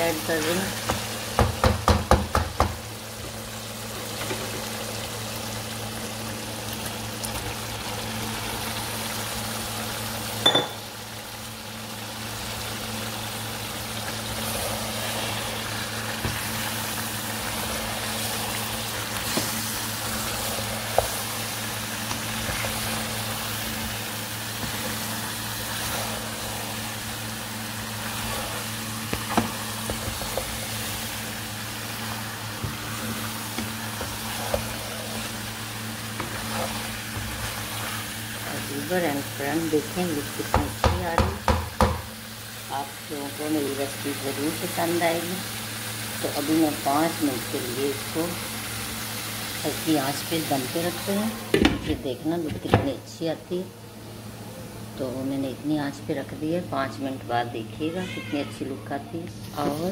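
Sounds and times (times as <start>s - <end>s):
food sizzling in a wok: 0.0s - 59.9s
spatula knocking on pan: 0.9s - 2.8s, 40.5s - 42.1s.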